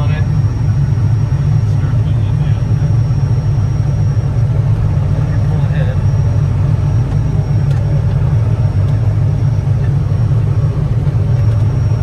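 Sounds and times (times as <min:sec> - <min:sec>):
tractor engine running under load: 0:00.0 - 0:12.0.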